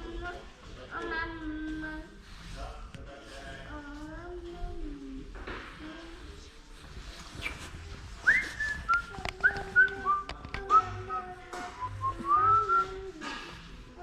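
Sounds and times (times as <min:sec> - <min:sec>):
whistled melody: 0:08.2 - 0:13.0.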